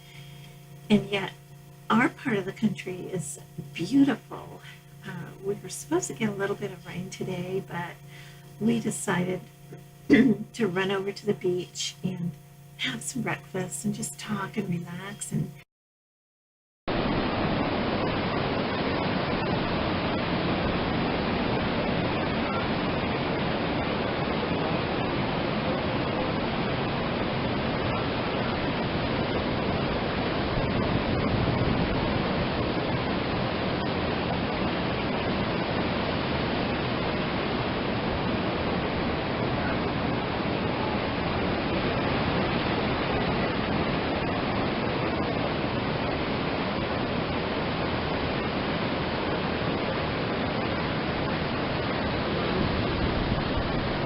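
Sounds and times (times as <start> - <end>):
waves breaking on a beach: 16.9 - 54.0.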